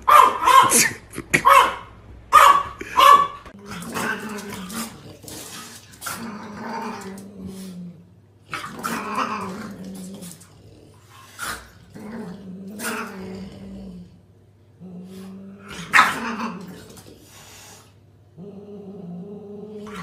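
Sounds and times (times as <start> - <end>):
low growling: 3.5 - 17.2, 18.3 - 20.0.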